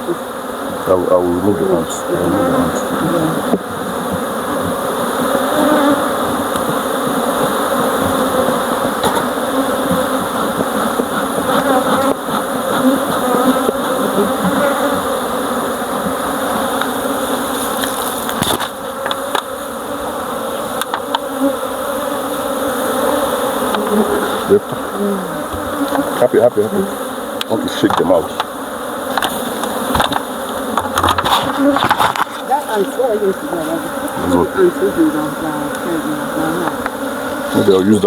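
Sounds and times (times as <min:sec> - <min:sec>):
honeybees buzzing: 0:00.0 - 0:38.0.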